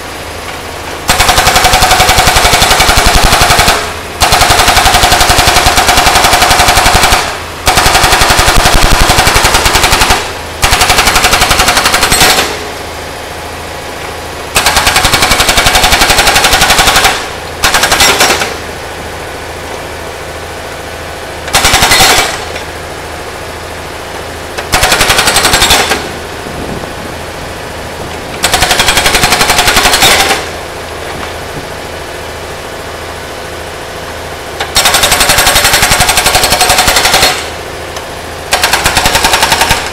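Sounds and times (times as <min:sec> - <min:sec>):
excavator engine running: 0:00.0 - 0:39.9
hydraulic breaker hammering metal: 0:14.5 - 0:18.6, 0:21.5 - 0:22.7, 0:34.6 - 0:37.6.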